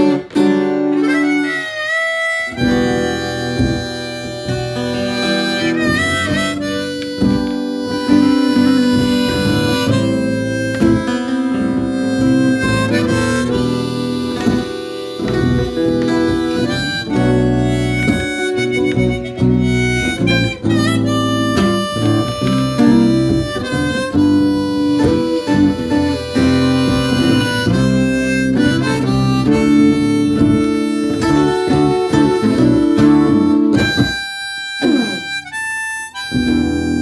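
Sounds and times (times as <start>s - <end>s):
acoustic guitar accompaniment: 0.0s - 37.0s
blues harmonica playing: 0.0s - 37.0s.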